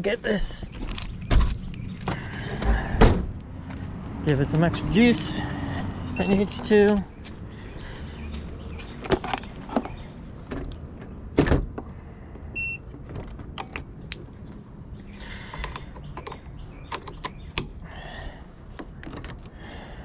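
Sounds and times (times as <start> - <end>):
clicks and clunks of handling: 8.8 - 10.8.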